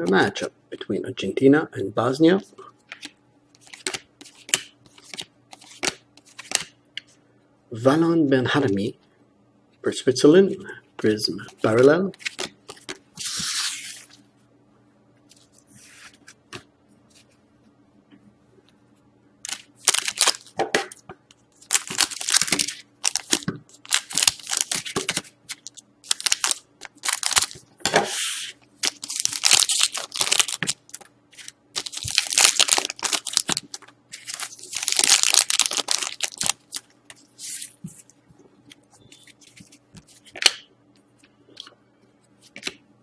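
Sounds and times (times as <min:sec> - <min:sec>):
card wrappers tearing and crinkling: 0:19.5 - 0:20.5, 0:21.6 - 0:27.6, 0:28.2 - 0:37.8.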